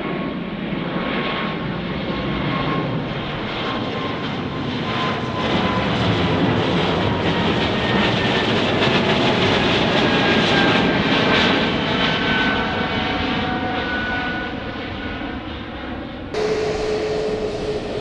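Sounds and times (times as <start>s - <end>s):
jet engines passing close: 0.0s - 18.0s
steady engine hum: 16.4s - 18.0s.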